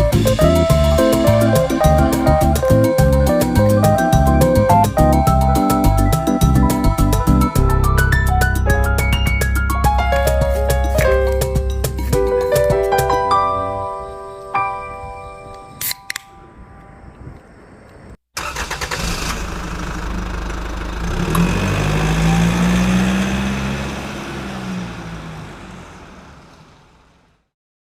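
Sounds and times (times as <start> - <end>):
sharp clicks: 15.8 - 16.4
engine cranking and running: 18.4 - 27.3.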